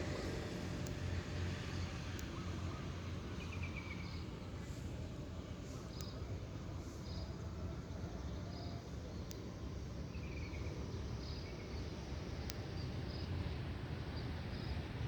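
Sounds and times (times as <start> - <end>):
faint click: 2.2 - 2.4, 5.9 - 6.2, 9.2 - 9.5, 12.4 - 12.6.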